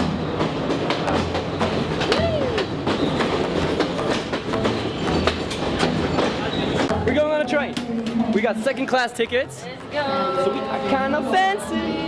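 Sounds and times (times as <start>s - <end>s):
train wheels clattering on track: 0.0s - 8.5s
wheel squeal: 1.2s - 4.0s, 4.6s - 6.9s.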